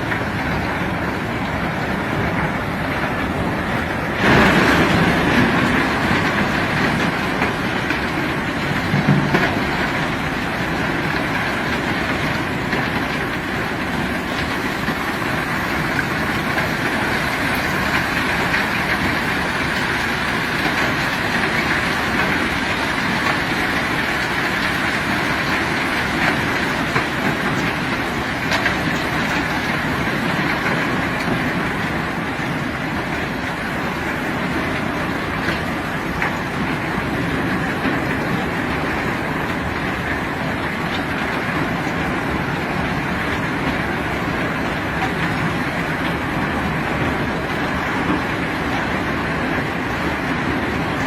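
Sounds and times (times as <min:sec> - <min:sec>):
heavy machinery rumbling: 0:00.0 - 0:51.0.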